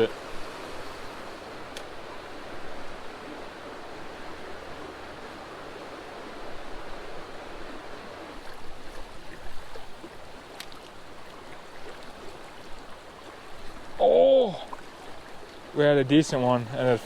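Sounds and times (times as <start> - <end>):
creek water over rocks: 0.0 - 17.0
faint clicks: 1.7 - 1.9.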